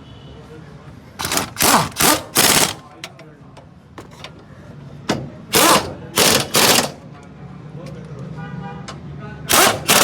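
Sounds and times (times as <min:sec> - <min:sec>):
impact wrench bursts: 0:01.2 - 0:02.9, 0:05.5 - 0:07.0, 0:09.5 - 0:10.0.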